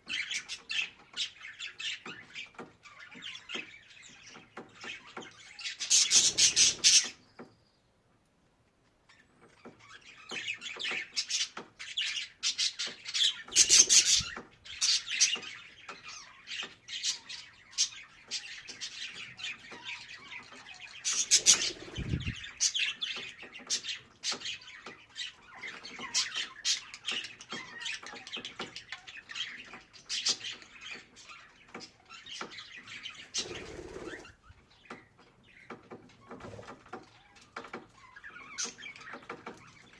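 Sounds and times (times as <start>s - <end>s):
budgerigar warbling and chattering: 10.4s - 31.5s.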